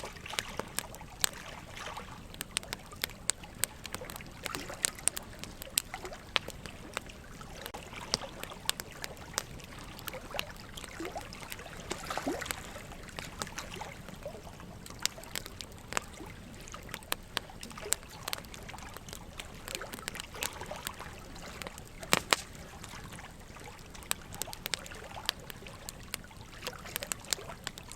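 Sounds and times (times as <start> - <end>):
logs crackling in a fireplace: 0.0 - 27.9
running water trickling: 0.0 - 27.9.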